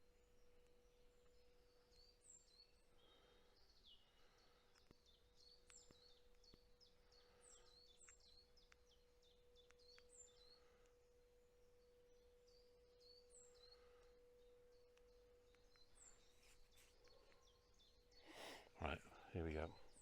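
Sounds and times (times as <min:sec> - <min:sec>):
birds chirping: 0:15.5 - 0:20.0.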